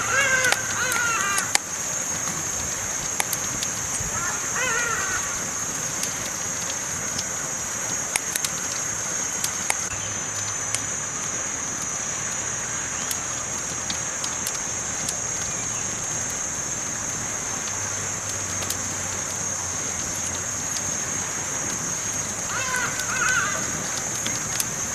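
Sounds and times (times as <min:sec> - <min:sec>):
campfire crackling and popping: 0:00.0 - 0:24.9
high-pitched hiss: 0:00.0 - 0:24.9.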